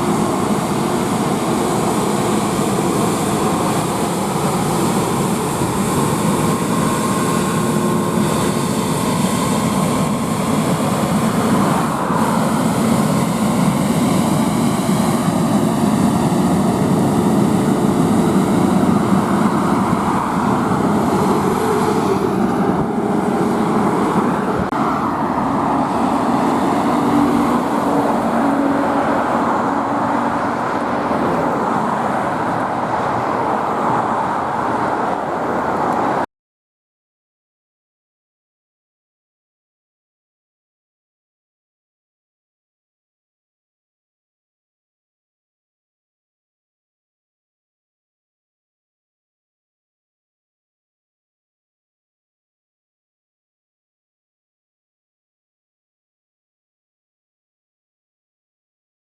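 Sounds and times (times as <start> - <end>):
road traffic rumble: 0.0 - 36.3
vehicle engines passing: 0.0 - 36.3.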